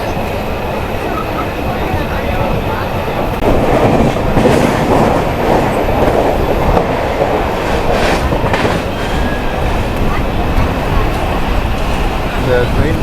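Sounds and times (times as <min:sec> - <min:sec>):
train rumbling on rails: 0:00.0 - 0:13.0
train wheels clacking: 0:03.3 - 0:13.0.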